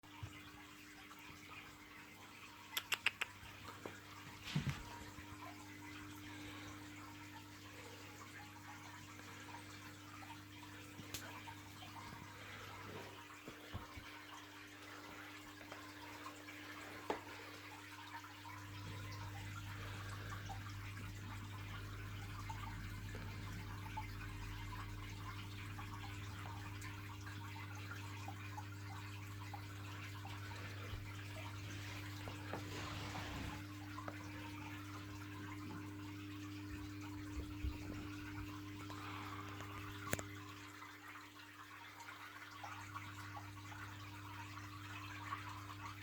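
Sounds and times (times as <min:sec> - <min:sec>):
small ticks: 0:02.7 - 0:04.0
faint trickling hiss: 0:30.0 - 0:36.9.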